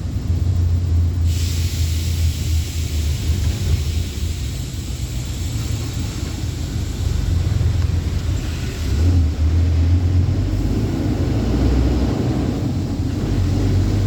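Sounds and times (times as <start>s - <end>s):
truck engine droning: 0.0s - 14.0s
steady hiss: 1.2s - 10.0s.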